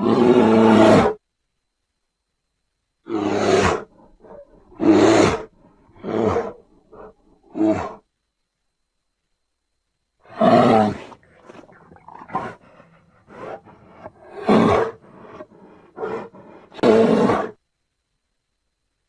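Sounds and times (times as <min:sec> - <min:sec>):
bear growling: 0:00.0 - 0:01.2, 0:03.0 - 0:08.1, 0:10.2 - 0:17.6
bear roaring: 0:00.0 - 0:01.2, 0:03.0 - 0:08.0, 0:10.2 - 0:17.6.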